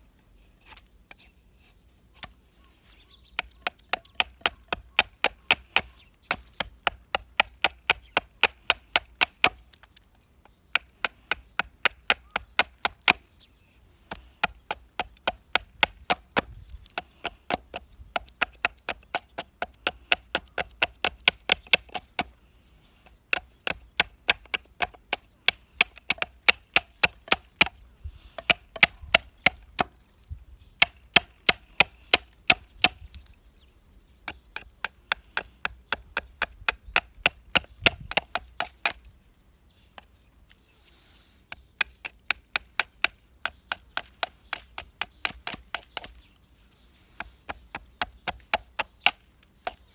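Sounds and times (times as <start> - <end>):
chopping wood: 3.4 - 10.0, 10.7 - 13.3, 14.1 - 22.4, 23.3 - 27.8, 28.4 - 30.0, 30.8 - 33.2, 34.2 - 39.1, 41.5 - 46.3, 47.2 - 49.9.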